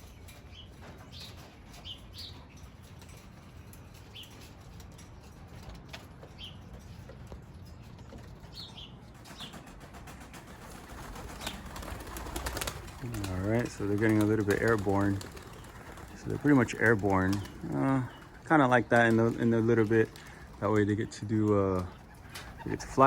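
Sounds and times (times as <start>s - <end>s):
pigeons flapping wings: 9.2s - 23.0s.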